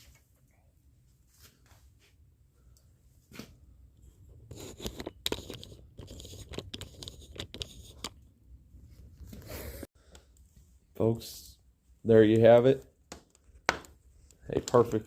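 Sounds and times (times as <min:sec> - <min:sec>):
wood fire crackling and popping: 0:12.4 - 0:15.0.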